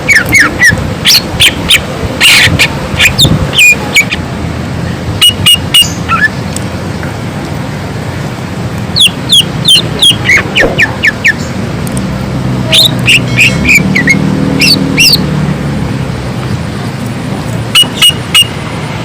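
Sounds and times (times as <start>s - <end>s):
bird whistling song: 9.0s - 11.5s, 12.7s - 15.2s, 17.8s - 18.5s.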